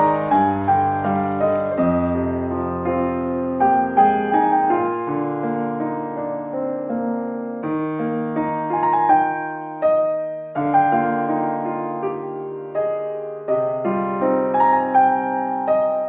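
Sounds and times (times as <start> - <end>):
slow gentle piano music: 0.0 - 16.0.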